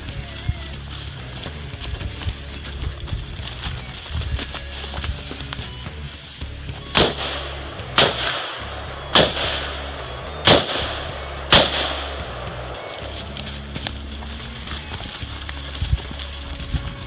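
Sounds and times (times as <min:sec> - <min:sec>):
gunshots with echo: 0:07.0 - 0:13.0.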